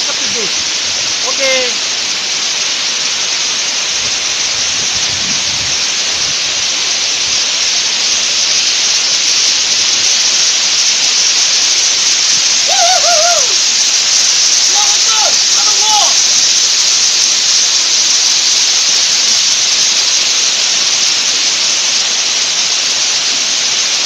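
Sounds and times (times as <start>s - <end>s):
waterfall rushing: 0.0s - 24.0s
warbling bird call: 11.3s - 17.2s.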